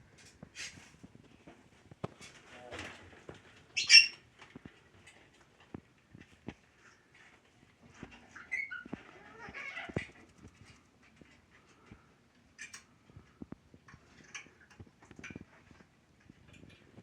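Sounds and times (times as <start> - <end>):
parrots calling and chattering: 3.7 - 4.2, 8.3 - 10.2.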